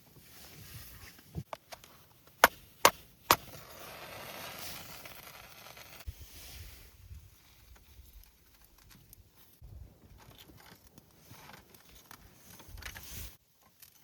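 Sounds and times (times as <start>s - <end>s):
wind rumble on microphone: 6.1s - 8.2s, 9.6s - 10.2s.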